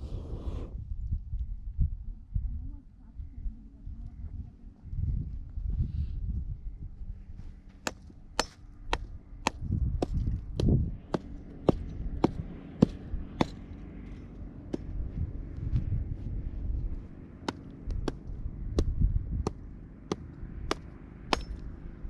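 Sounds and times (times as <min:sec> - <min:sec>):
low rumble: 0:00.0 - 0:22.0
sharp striking blows: 0:19.5 - 0:21.6.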